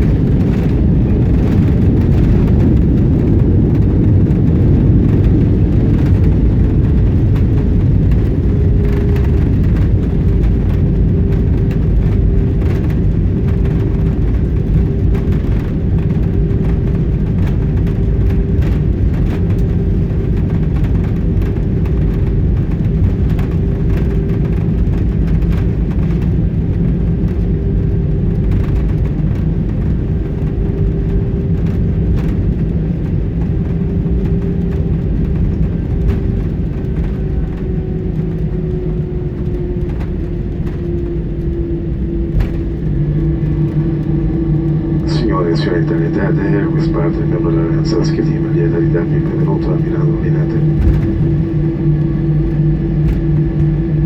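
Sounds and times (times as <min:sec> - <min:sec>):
airplane cabin rumble: 0:00.0 - 0:54.0
steady hum: 0:37.6 - 0:54.0.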